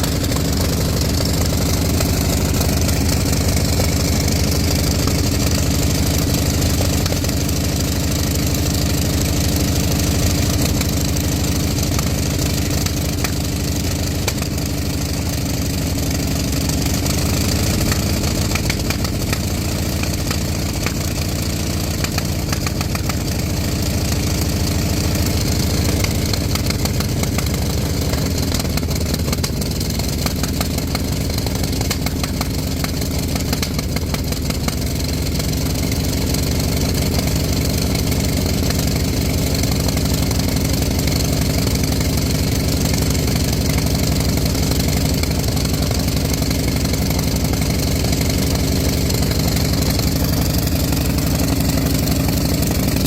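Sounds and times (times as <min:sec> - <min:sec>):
radial engine running: 0:00.0 - 0:15.8.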